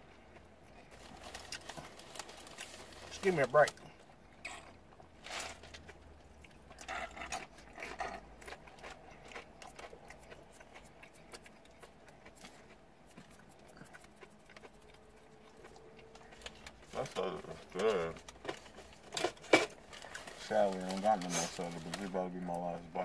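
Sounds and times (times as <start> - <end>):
low steady hum: 0.0 - 23.0
potato chip crunching: 0.8 - 22.8
chewing and lip smacking: 5.8 - 18.9.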